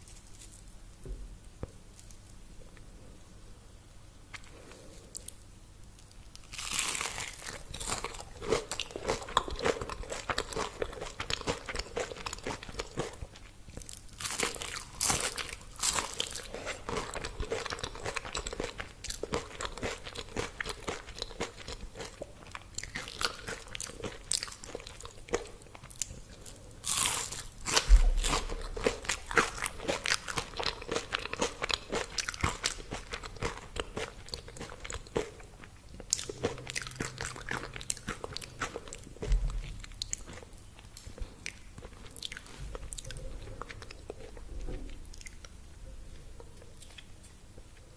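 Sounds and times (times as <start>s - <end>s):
crunchy chewing: 6.0s - 47.9s
crunching bites of fried food: 6.4s - 26.2s, 26.8s - 39.1s.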